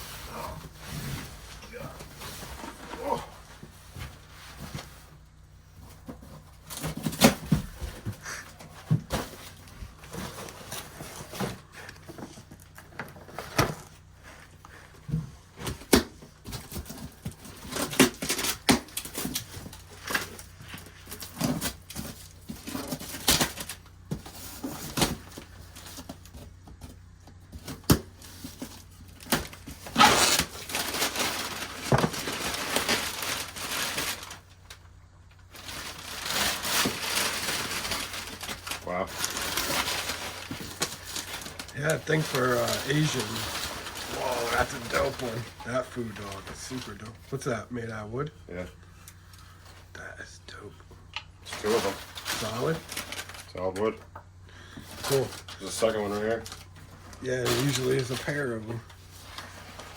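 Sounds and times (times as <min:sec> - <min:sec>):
rustling: 0:00.0 - 0:47.4, 0:51.4 - 0:54.0, 0:54.6 - 0:59.9.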